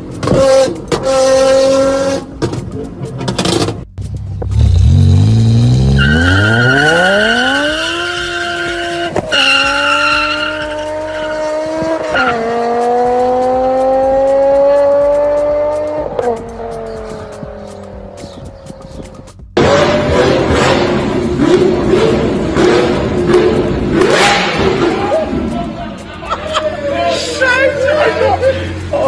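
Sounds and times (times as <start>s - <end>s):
car engine accelerating: 0.0s - 29.0s
high squeal: 5.8s - 11.4s.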